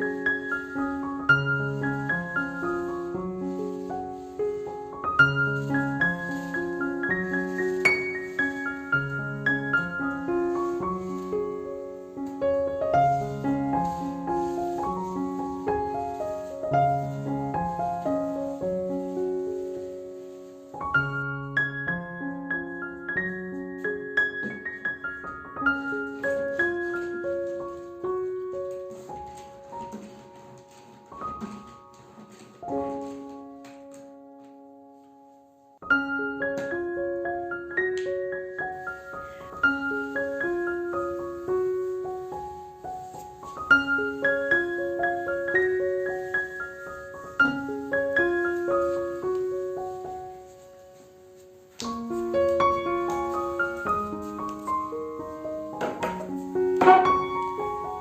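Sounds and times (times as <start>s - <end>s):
gentle piano music: 0.0s - 58.0s.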